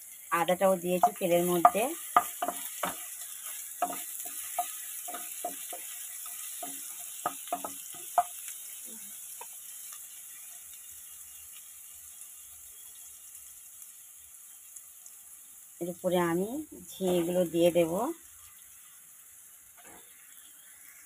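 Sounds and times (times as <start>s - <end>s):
spices sizzling in hot oil: 0.0s - 21.0s
wooden spatula knocking on pan: 1.0s - 3.2s, 3.8s - 8.4s, 17.0s - 17.4s.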